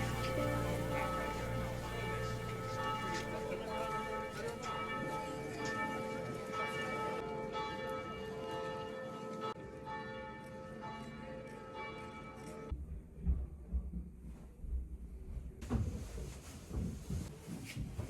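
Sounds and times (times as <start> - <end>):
church bells ringing: 0.0 - 12.7.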